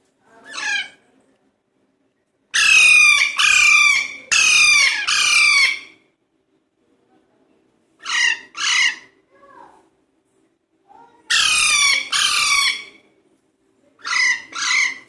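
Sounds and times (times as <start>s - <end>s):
parakeets squawking: 2.6s - 6.0s, 8.0s - 9.2s, 11.3s - 13.0s, 14.0s - 15.0s.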